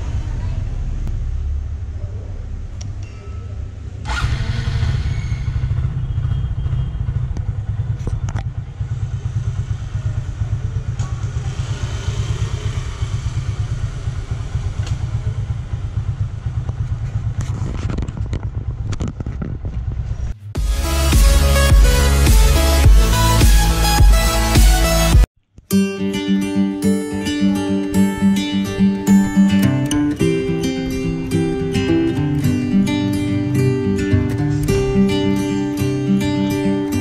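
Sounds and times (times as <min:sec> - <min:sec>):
motorcycle engine idling: 0:04.1 - 0:24.0.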